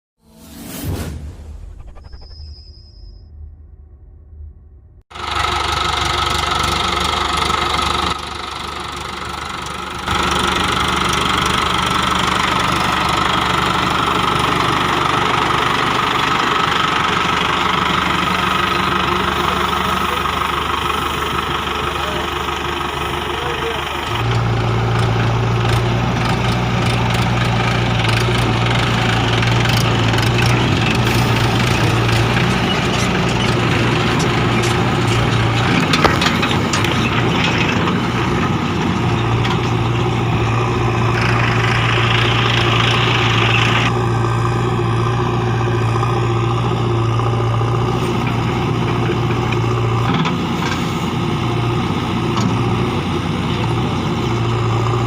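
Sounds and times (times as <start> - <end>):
high-pitched noise: 0.2 - 5.0
diesel engine running: 3.4 - 55.0.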